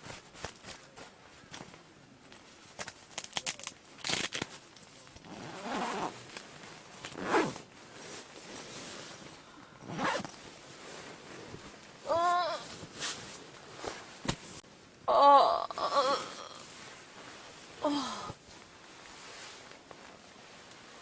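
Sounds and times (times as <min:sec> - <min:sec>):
nylon rustling: 0:00.0 - 0:14.6, 0:16.5 - 0:21.0
sleeping bag zipper drawn: 0:05.2 - 0:06.3, 0:07.1 - 0:07.7, 0:09.8 - 0:10.4.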